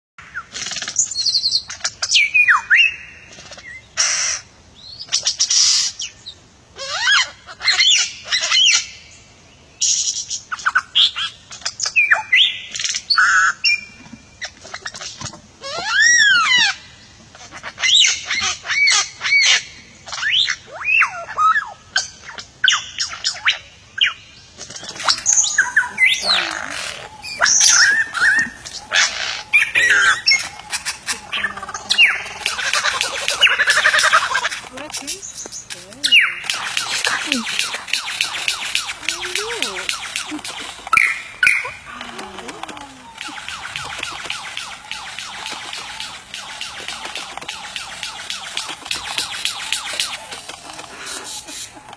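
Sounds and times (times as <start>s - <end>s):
bird whistles chirps and squawks: 9.8s - 16.8s, 17.8s - 41.9s.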